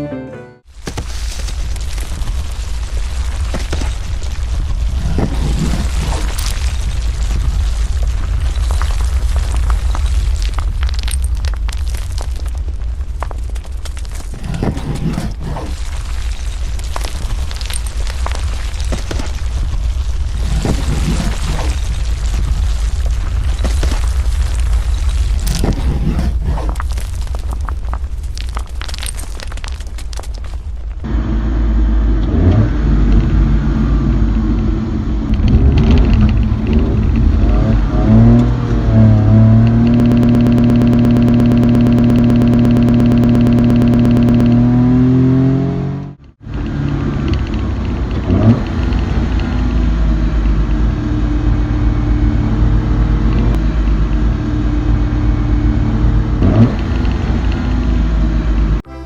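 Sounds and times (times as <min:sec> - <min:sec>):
tyres rumbling on rough ground: 0:00.7 - 0:58.9
electric motor and gearbox whining: 0:04.8 - 0:06.7, 0:14.2 - 0:15.9, 0:20.2 - 0:21.9, 0:25.4 - 0:27.1, 0:31.1 - 0:58.8.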